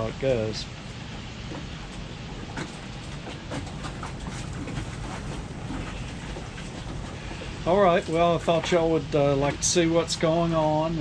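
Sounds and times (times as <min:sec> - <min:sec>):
clicks and knocks on a boat: 0:01.4 - 0:08.9.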